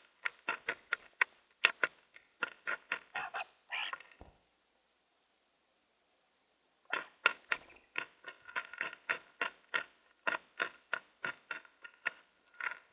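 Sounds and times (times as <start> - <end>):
bird calling sharply: 3.2 - 4.1.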